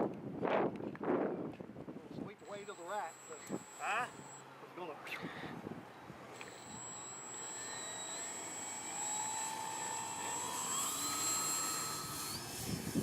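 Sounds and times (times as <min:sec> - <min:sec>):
model plane motor whine: 0:02.3 - 0:04.5, 0:06.2 - 0:13.0.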